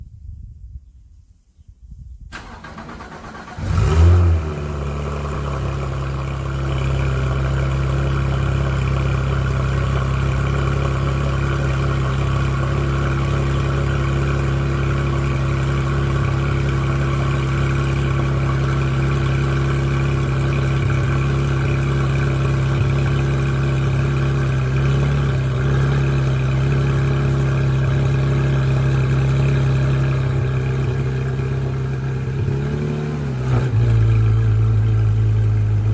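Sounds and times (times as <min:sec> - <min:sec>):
car engine starting and idling: 0:02.3 - 0:35.9
starter motor cranking: 0:02.4 - 0:04.2.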